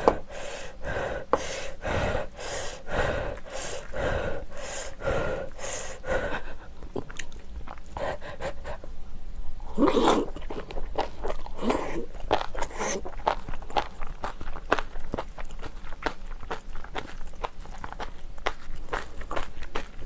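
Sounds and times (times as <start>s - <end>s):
wet mouth noises: 6.8s - 8.6s
chewing and crunching: 6.8s - 8.8s, 9.7s - 20.0s.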